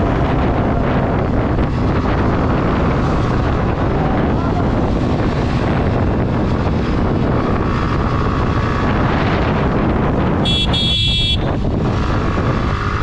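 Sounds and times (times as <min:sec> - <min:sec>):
motorcycle engine running: 0:00.0 - 0:13.0
vehicle horn: 0:10.4 - 0:11.6.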